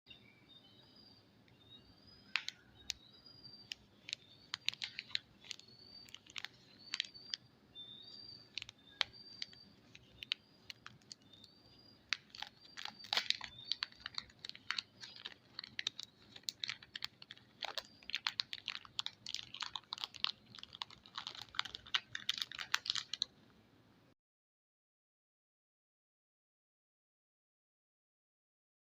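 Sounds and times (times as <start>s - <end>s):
bird chirping: 0.1s - 23.3s
soap packaging clicks and crackles: 2.3s - 7.4s, 8.0s - 23.4s.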